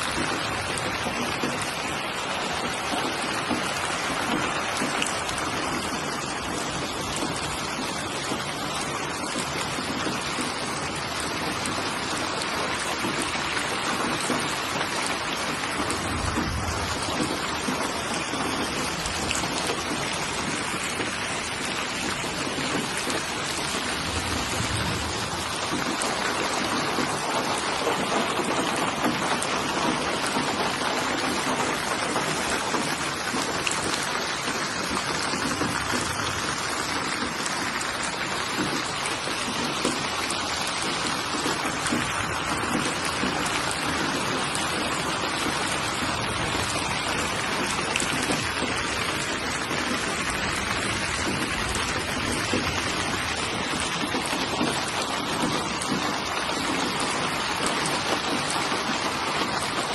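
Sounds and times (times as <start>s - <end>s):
rain hissing on surfaces: 0.0s - 59.9s.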